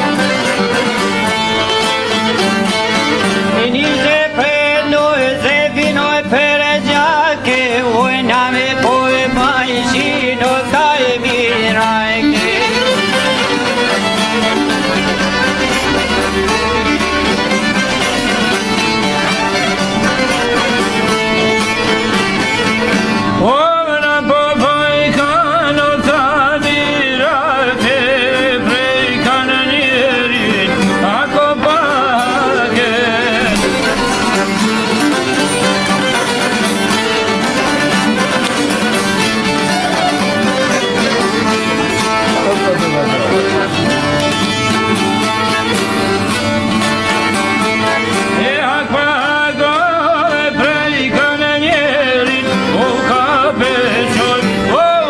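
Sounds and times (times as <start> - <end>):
ornamented solo melody: 0.0 - 4.0, 11.4 - 23.4, 31.4 - 48.6
person singing: 0.0 - 45.6, 47.7 - 55.0
folk band with violin: 0.0 - 55.0.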